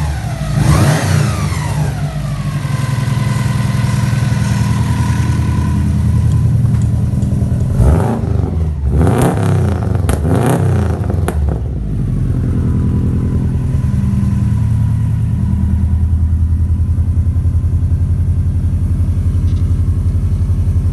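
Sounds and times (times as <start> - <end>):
engine revving blips: 0.0 - 16.4
car engine idling: 0.0 - 20.9.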